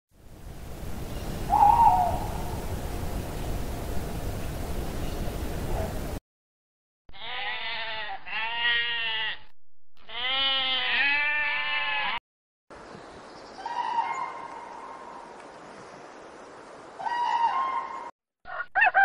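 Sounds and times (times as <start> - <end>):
steady hiss: 0.2 - 6.2
sheep bleating: 7.1 - 12.2.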